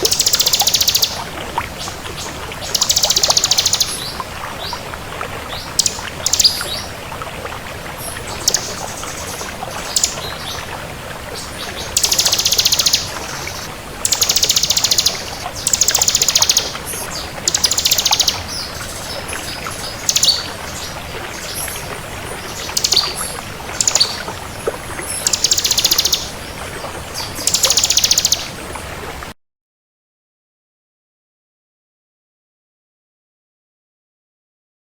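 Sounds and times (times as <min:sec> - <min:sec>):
bird singing rattling trills: 0:00.1 - 0:01.2, 0:02.7 - 0:04.1, 0:11.9 - 0:16.7, 0:17.5 - 0:18.7, 0:19.8 - 0:20.5, 0:25.2 - 0:26.3, 0:27.4 - 0:28.5.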